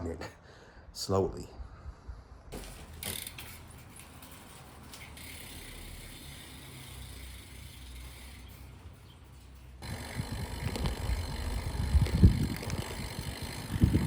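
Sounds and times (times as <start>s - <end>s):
bike hub ratchet clicking: 2.6s - 9.2s, 9.8s - 14.0s.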